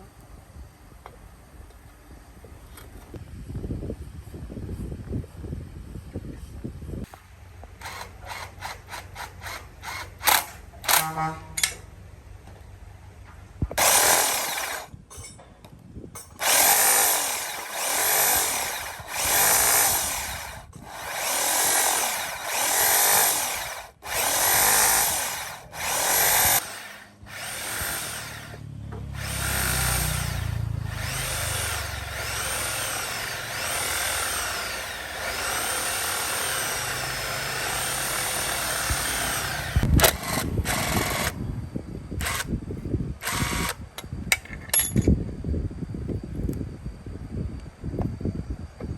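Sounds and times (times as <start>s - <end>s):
electric power tool spinning: 13.8s - 14.9s, 16.4s - 41.4s, 42.2s - 42.5s, 43.2s - 43.8s.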